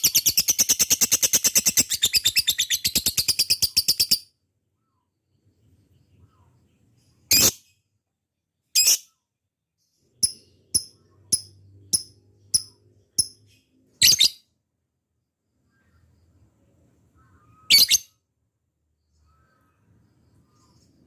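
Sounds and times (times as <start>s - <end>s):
lovebird chirping: 0.0s - 8.0s, 9.8s - 14.6s, 15.6s - 21.0s.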